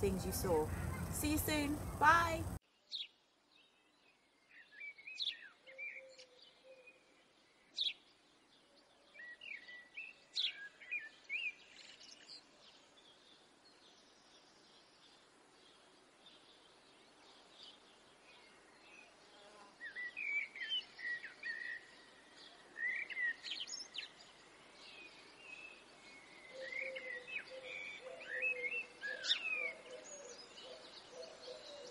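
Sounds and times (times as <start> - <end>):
faint steady background: 0.0 - 2.7
lower steady bird call: 0.0 - 31.9.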